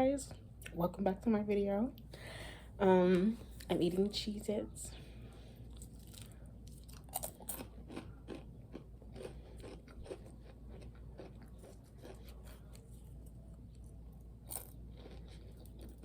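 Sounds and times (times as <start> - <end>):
crackers crunching while chewing: 5.6 - 16.0.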